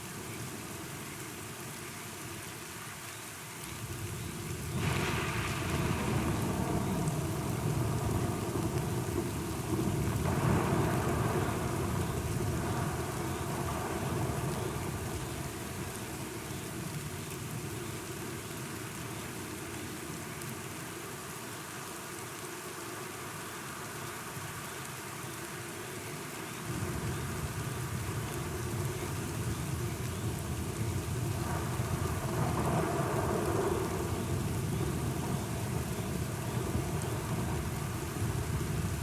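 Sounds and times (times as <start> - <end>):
steady rain: 0.0 - 39.0
thunder rumbling: 4.6 - 17.0, 26.7 - 39.0.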